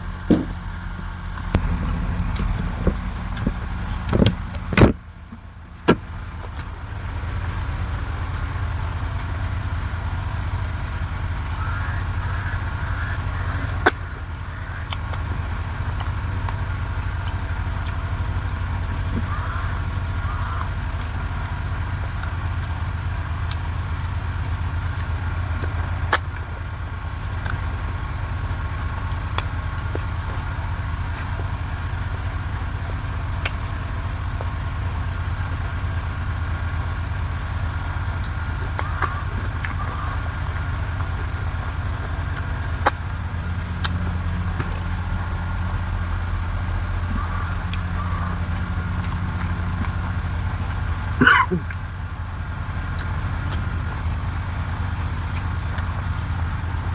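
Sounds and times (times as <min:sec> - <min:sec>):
low mechanical hum: 0:00.0 - 0:56.9
loud clatter: 0:01.5 - 0:11.3.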